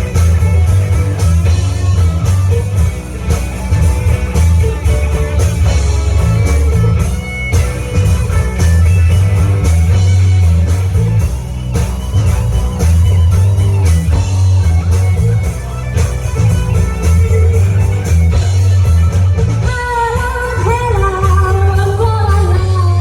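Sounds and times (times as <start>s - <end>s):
electric guitar: 0.0s - 23.0s
heavy bass: 0.0s - 23.0s
live rock band playing: 0.0s - 23.0s.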